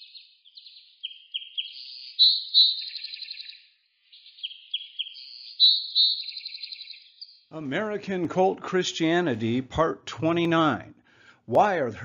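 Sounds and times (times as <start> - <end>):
songbird chirps and trills: 0.0 - 7.6.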